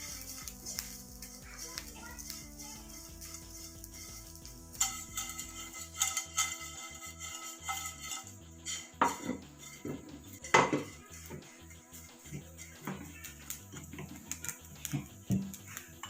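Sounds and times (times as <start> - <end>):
utensil scraping a pan: 0.0 - 13.1
clinks: 4.8 - 11.0.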